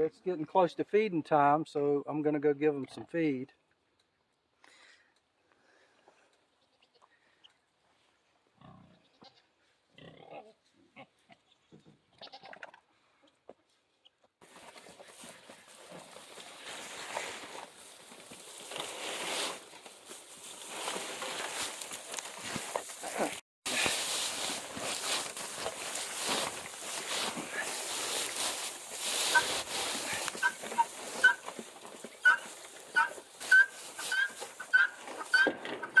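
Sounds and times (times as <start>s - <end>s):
pigs calling: 25.9s - 36.0s.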